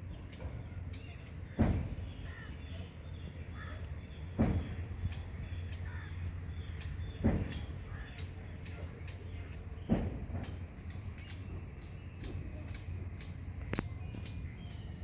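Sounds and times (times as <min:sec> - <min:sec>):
steady low hum: 0:00.0 - 0:15.0
dull thumps: 0:04.4 - 0:04.8, 0:07.2 - 0:07.8.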